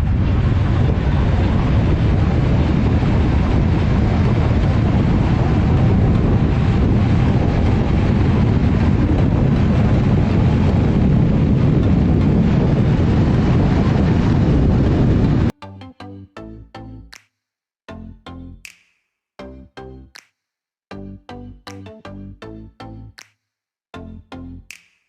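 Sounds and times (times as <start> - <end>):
wind buffeting microphone: 0.0 - 15.5.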